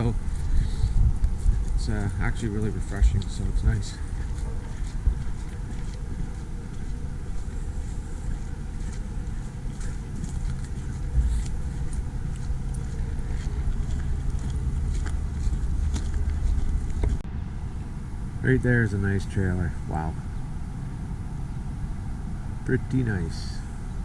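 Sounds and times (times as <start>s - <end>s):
wind buffeting microphone: 0.0s - 18.4s.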